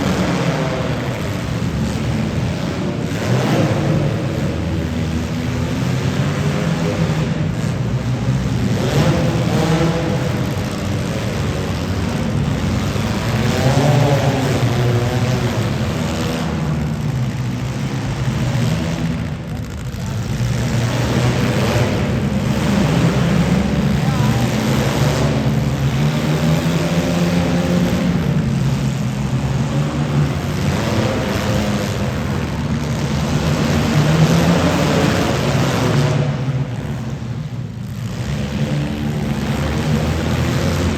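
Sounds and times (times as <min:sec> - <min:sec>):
car engines revving: 0:00.0 - 0:40.9
faint voice: 0:23.6 - 0:24.8.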